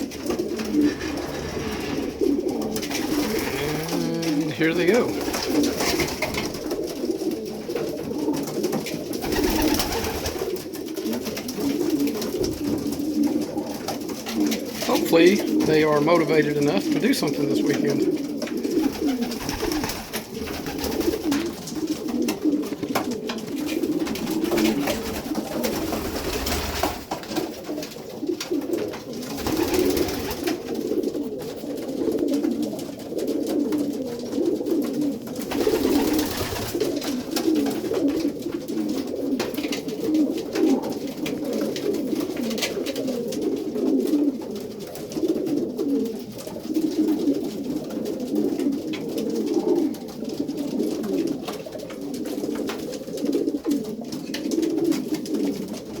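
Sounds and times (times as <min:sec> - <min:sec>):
rustling: 0:00.0 - 0:07.5
pigeons cooing: 0:00.0 - 0:56.0.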